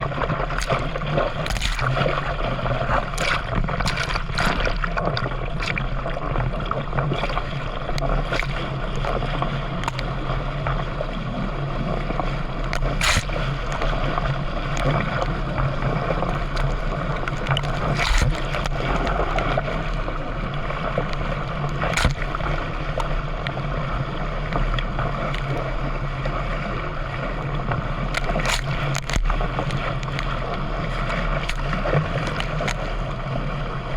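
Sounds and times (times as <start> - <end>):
paddle splash or knock: 0.0 - 6.0, 7.0 - 10.7, 12.0 - 20.0, 20.7 - 23.2, 28.0 - 33.2
low steady hum: 0.0 - 33.9
water rushing and splashing: 0.0 - 33.9.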